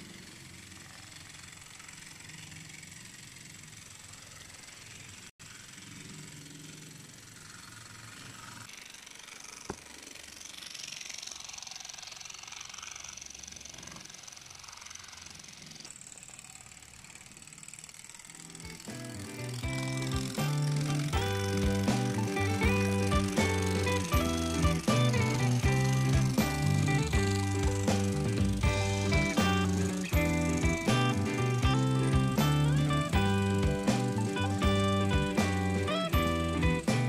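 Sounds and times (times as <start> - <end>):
light mechanical rattle: 0.0 - 37.0
model steam locomotive hissing: 0.0 - 37.0.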